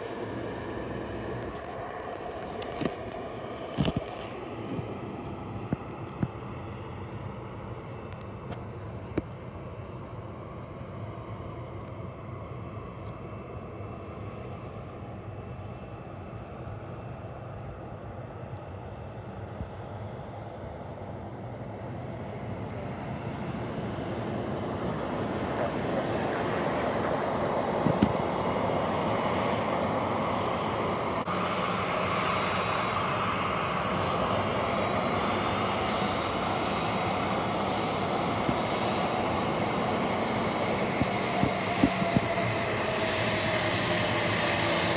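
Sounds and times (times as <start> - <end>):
aircraft engine noise: 0.0 - 44.9.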